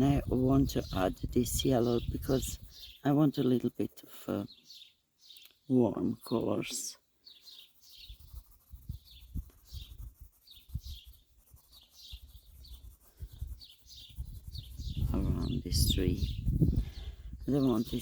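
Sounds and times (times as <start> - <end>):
small birds chirping: 0.0 - 18.0
low bumps and rumble: 14.2 - 16.8.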